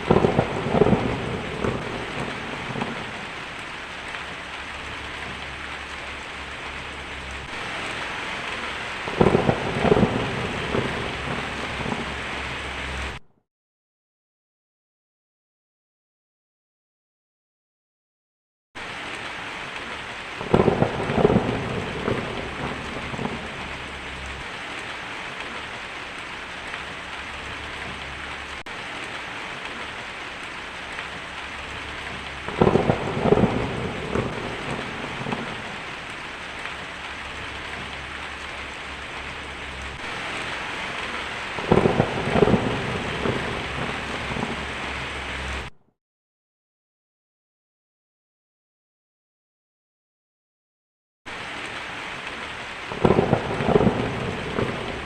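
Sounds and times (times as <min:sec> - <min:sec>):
steady rain: 0:00.0 - 0:13.2, 0:18.8 - 0:45.7, 0:51.3 - 0:55.0
thunderclaps rumbling: 0:00.0 - 0:13.2, 0:18.8 - 0:45.7, 0:52.8 - 0:55.0.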